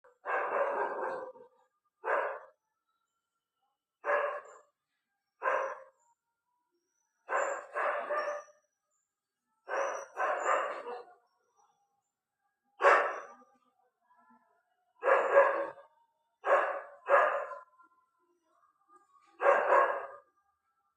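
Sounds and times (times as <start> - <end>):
dog barking: 0.1 - 2.6, 4.0 - 4.8, 5.4 - 6.0, 7.2 - 8.6, 9.6 - 11.3, 12.8 - 13.4, 15.0 - 17.7, 19.2 - 20.3.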